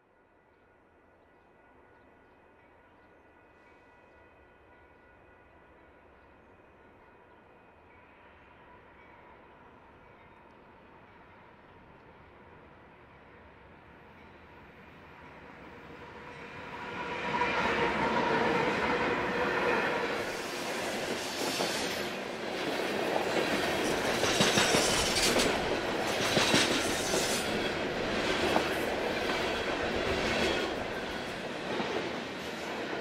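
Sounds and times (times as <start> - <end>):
diesel locomotives passing: 0.2 - 33.0
train wheels clacking on rail joints: 20.2 - 33.0.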